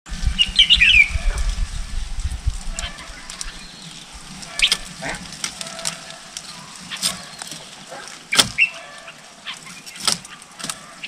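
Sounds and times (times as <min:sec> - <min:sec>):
low rumbling microphone noise: 0:00.1 - 0:08.2
bird chirping: 0:00.2 - 0:01.6, 0:02.7 - 0:11.0.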